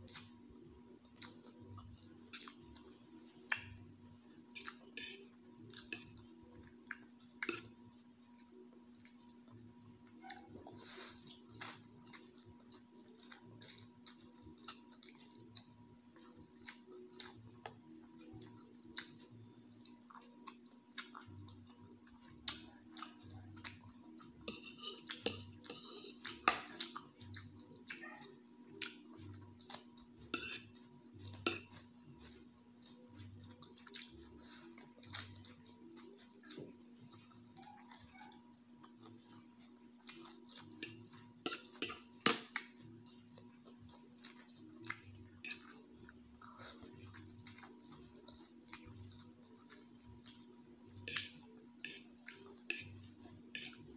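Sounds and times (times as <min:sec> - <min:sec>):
faint low hum: 0:00.0 - 0:53.9
slurping and chewing noodles: 0:00.0 - 0:53.9
fork scraping a plate: 0:04.5 - 0:06.3, 0:07.4 - 0:07.8, 0:24.3 - 0:27.0, 0:30.2 - 0:32.4, 0:40.6 - 0:42.6, 0:45.4 - 0:45.9, 0:51.0 - 0:53.9.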